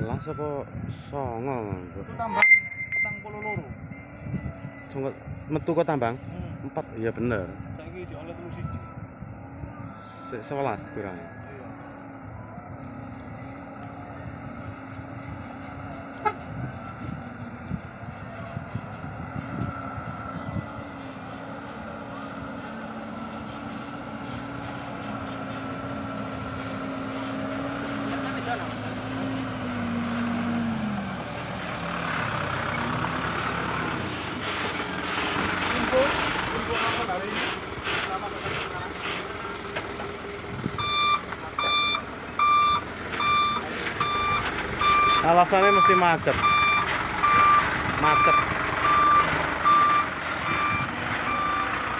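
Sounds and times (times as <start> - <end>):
truck reversing alarm beeping: 0.0 - 1.1, 2.3 - 5.8, 7.1 - 30.9, 40.7 - 51.9
truck engine running: 2.7 - 51.9.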